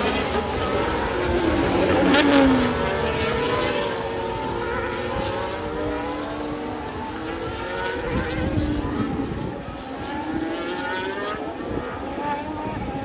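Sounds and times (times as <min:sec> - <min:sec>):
race cars passing at speed: 0:00.0 - 0:13.0.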